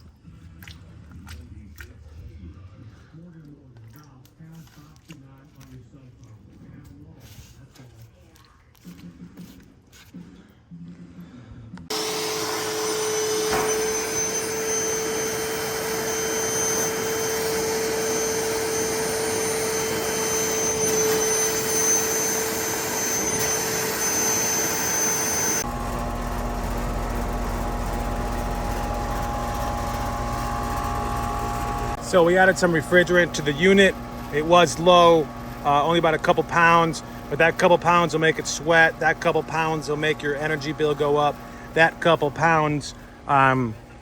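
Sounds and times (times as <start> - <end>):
low machine hum: 10.2 - 44.0
vacuum motor whine: 11.8 - 44.0.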